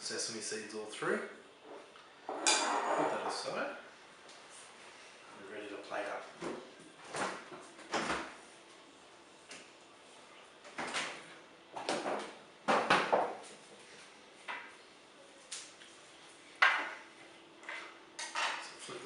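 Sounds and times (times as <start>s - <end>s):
dishes knocking and scraping: 1.7s - 3.4s, 16.6s - 17.0s, 17.6s - 18.8s.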